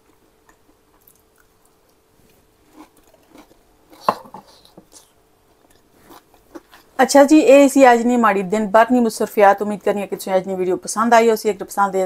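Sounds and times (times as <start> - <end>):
person chewing: 0.0 - 7.0
faint steady hum: 0.0 - 12.0.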